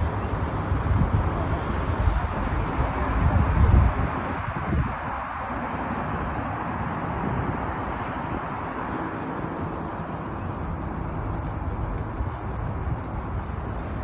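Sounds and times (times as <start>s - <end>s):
highway traffic noise: 0.0s - 14.0s.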